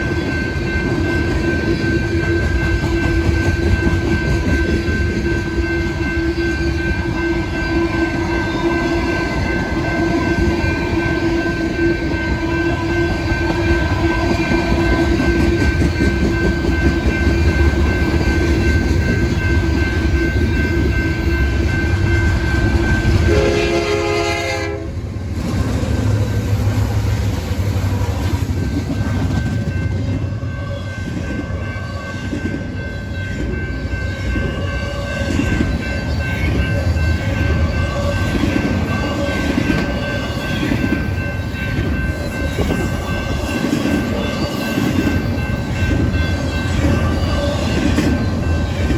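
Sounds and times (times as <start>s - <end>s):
train wheel clatter: 0.0s - 24.7s, 25.3s - 31.5s, 32.2s - 48.9s
freight train rumble: 0.0s - 48.9s
train horn: 22.0s - 25.1s.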